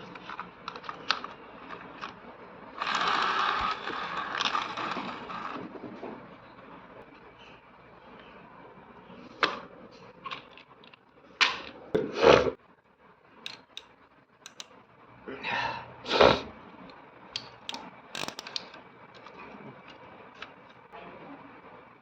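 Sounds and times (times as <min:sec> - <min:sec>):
plastic toys clicking and scraping: 0:02.8 - 0:06.0, 0:13.5 - 0:14.8, 0:17.4 - 0:20.8.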